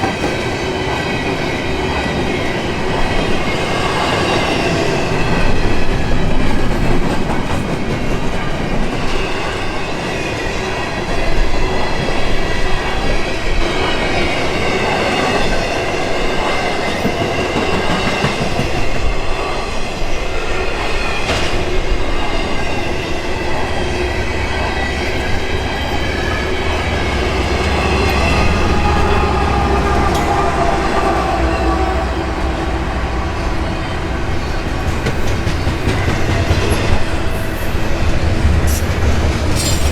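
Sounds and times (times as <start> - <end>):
train wheels on rails: 0.0 - 39.9
high wheel squeal: 20.8 - 36.9.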